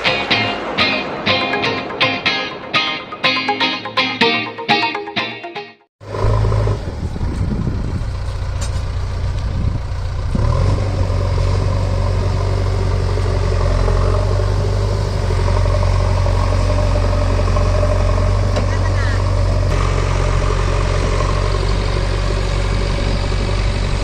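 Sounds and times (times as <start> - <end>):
diesel engine rumbling: 6.0 - 24.0.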